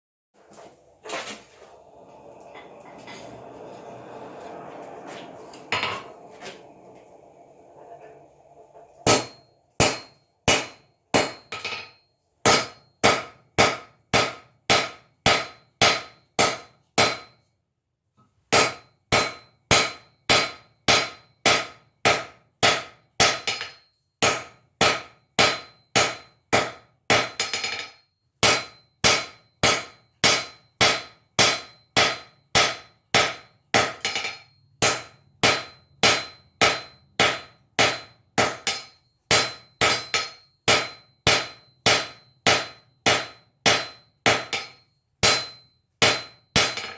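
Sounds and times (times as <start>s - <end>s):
hammer striking iron on anvil: 9.0s - 17.4s, 18.5s - 46.9s.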